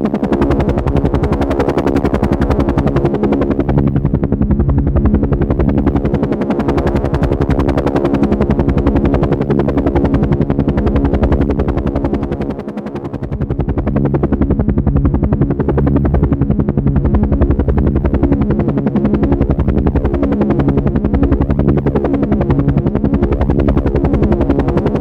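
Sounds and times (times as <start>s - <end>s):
helicopter rotor chopping: 0.0s - 25.0s.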